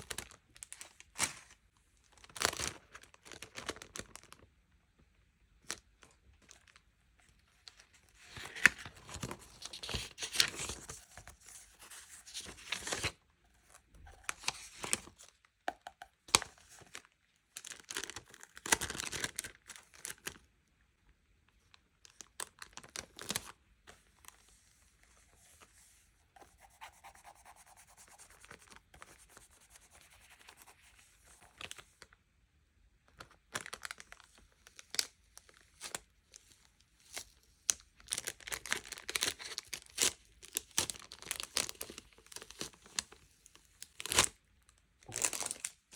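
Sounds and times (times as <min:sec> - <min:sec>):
packaging crinkling and tearing: 0:00.0 - 0:04.4, 0:16.3 - 0:20.4, 0:22.0 - 0:23.6, 0:33.2 - 0:36.0, 0:37.0 - 0:44.4, 0:45.0 - 0:45.8.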